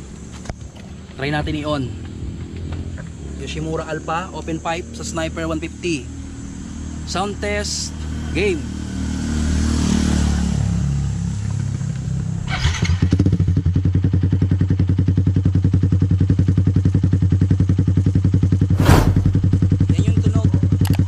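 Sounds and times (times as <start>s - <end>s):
motorcycle engine starting and idling: 11.8s - 13.8s
sharp knock: 18.8s - 19.8s.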